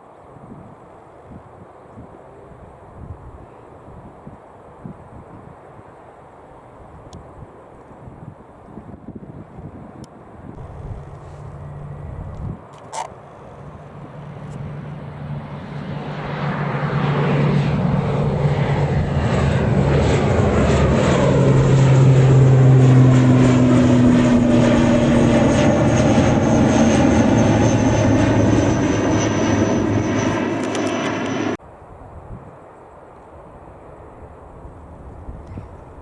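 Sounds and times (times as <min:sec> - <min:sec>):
airliner engines passing: 0:09.6 - 0:36.0
high engine whine falling in pitch: 0:10.6 - 0:15.6, 0:17.0 - 0:31.6.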